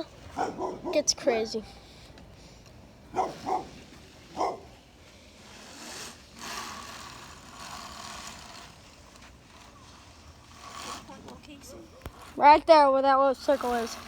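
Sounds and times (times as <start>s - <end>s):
dog barking: 0.4s - 1.1s, 3.1s - 3.7s, 4.4s - 4.7s.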